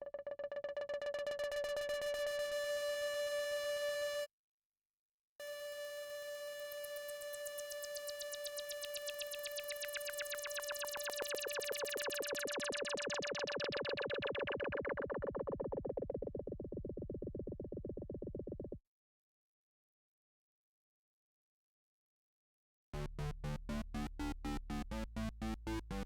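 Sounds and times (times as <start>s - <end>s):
synthesizer held note throbbing: 7.0s - 18.7s.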